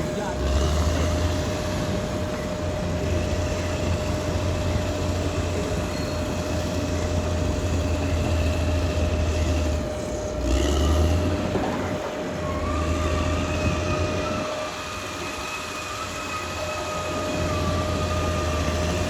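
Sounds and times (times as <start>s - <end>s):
bulldozer diesel engine rumbling: 0.0s - 19.0s
steel tracks rattling: 0.0s - 19.0s.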